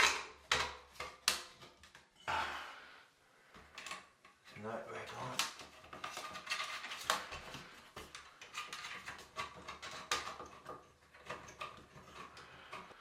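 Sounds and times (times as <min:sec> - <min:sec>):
metal clicks and scrapes: 0:05.3 - 0:13.0.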